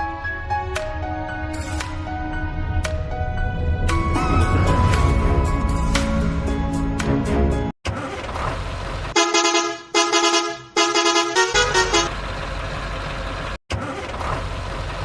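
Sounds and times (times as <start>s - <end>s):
engine rumble: 1.4s - 9.2s, 11.5s - 15.0s
vehicle horn honking: 9.2s - 12.2s.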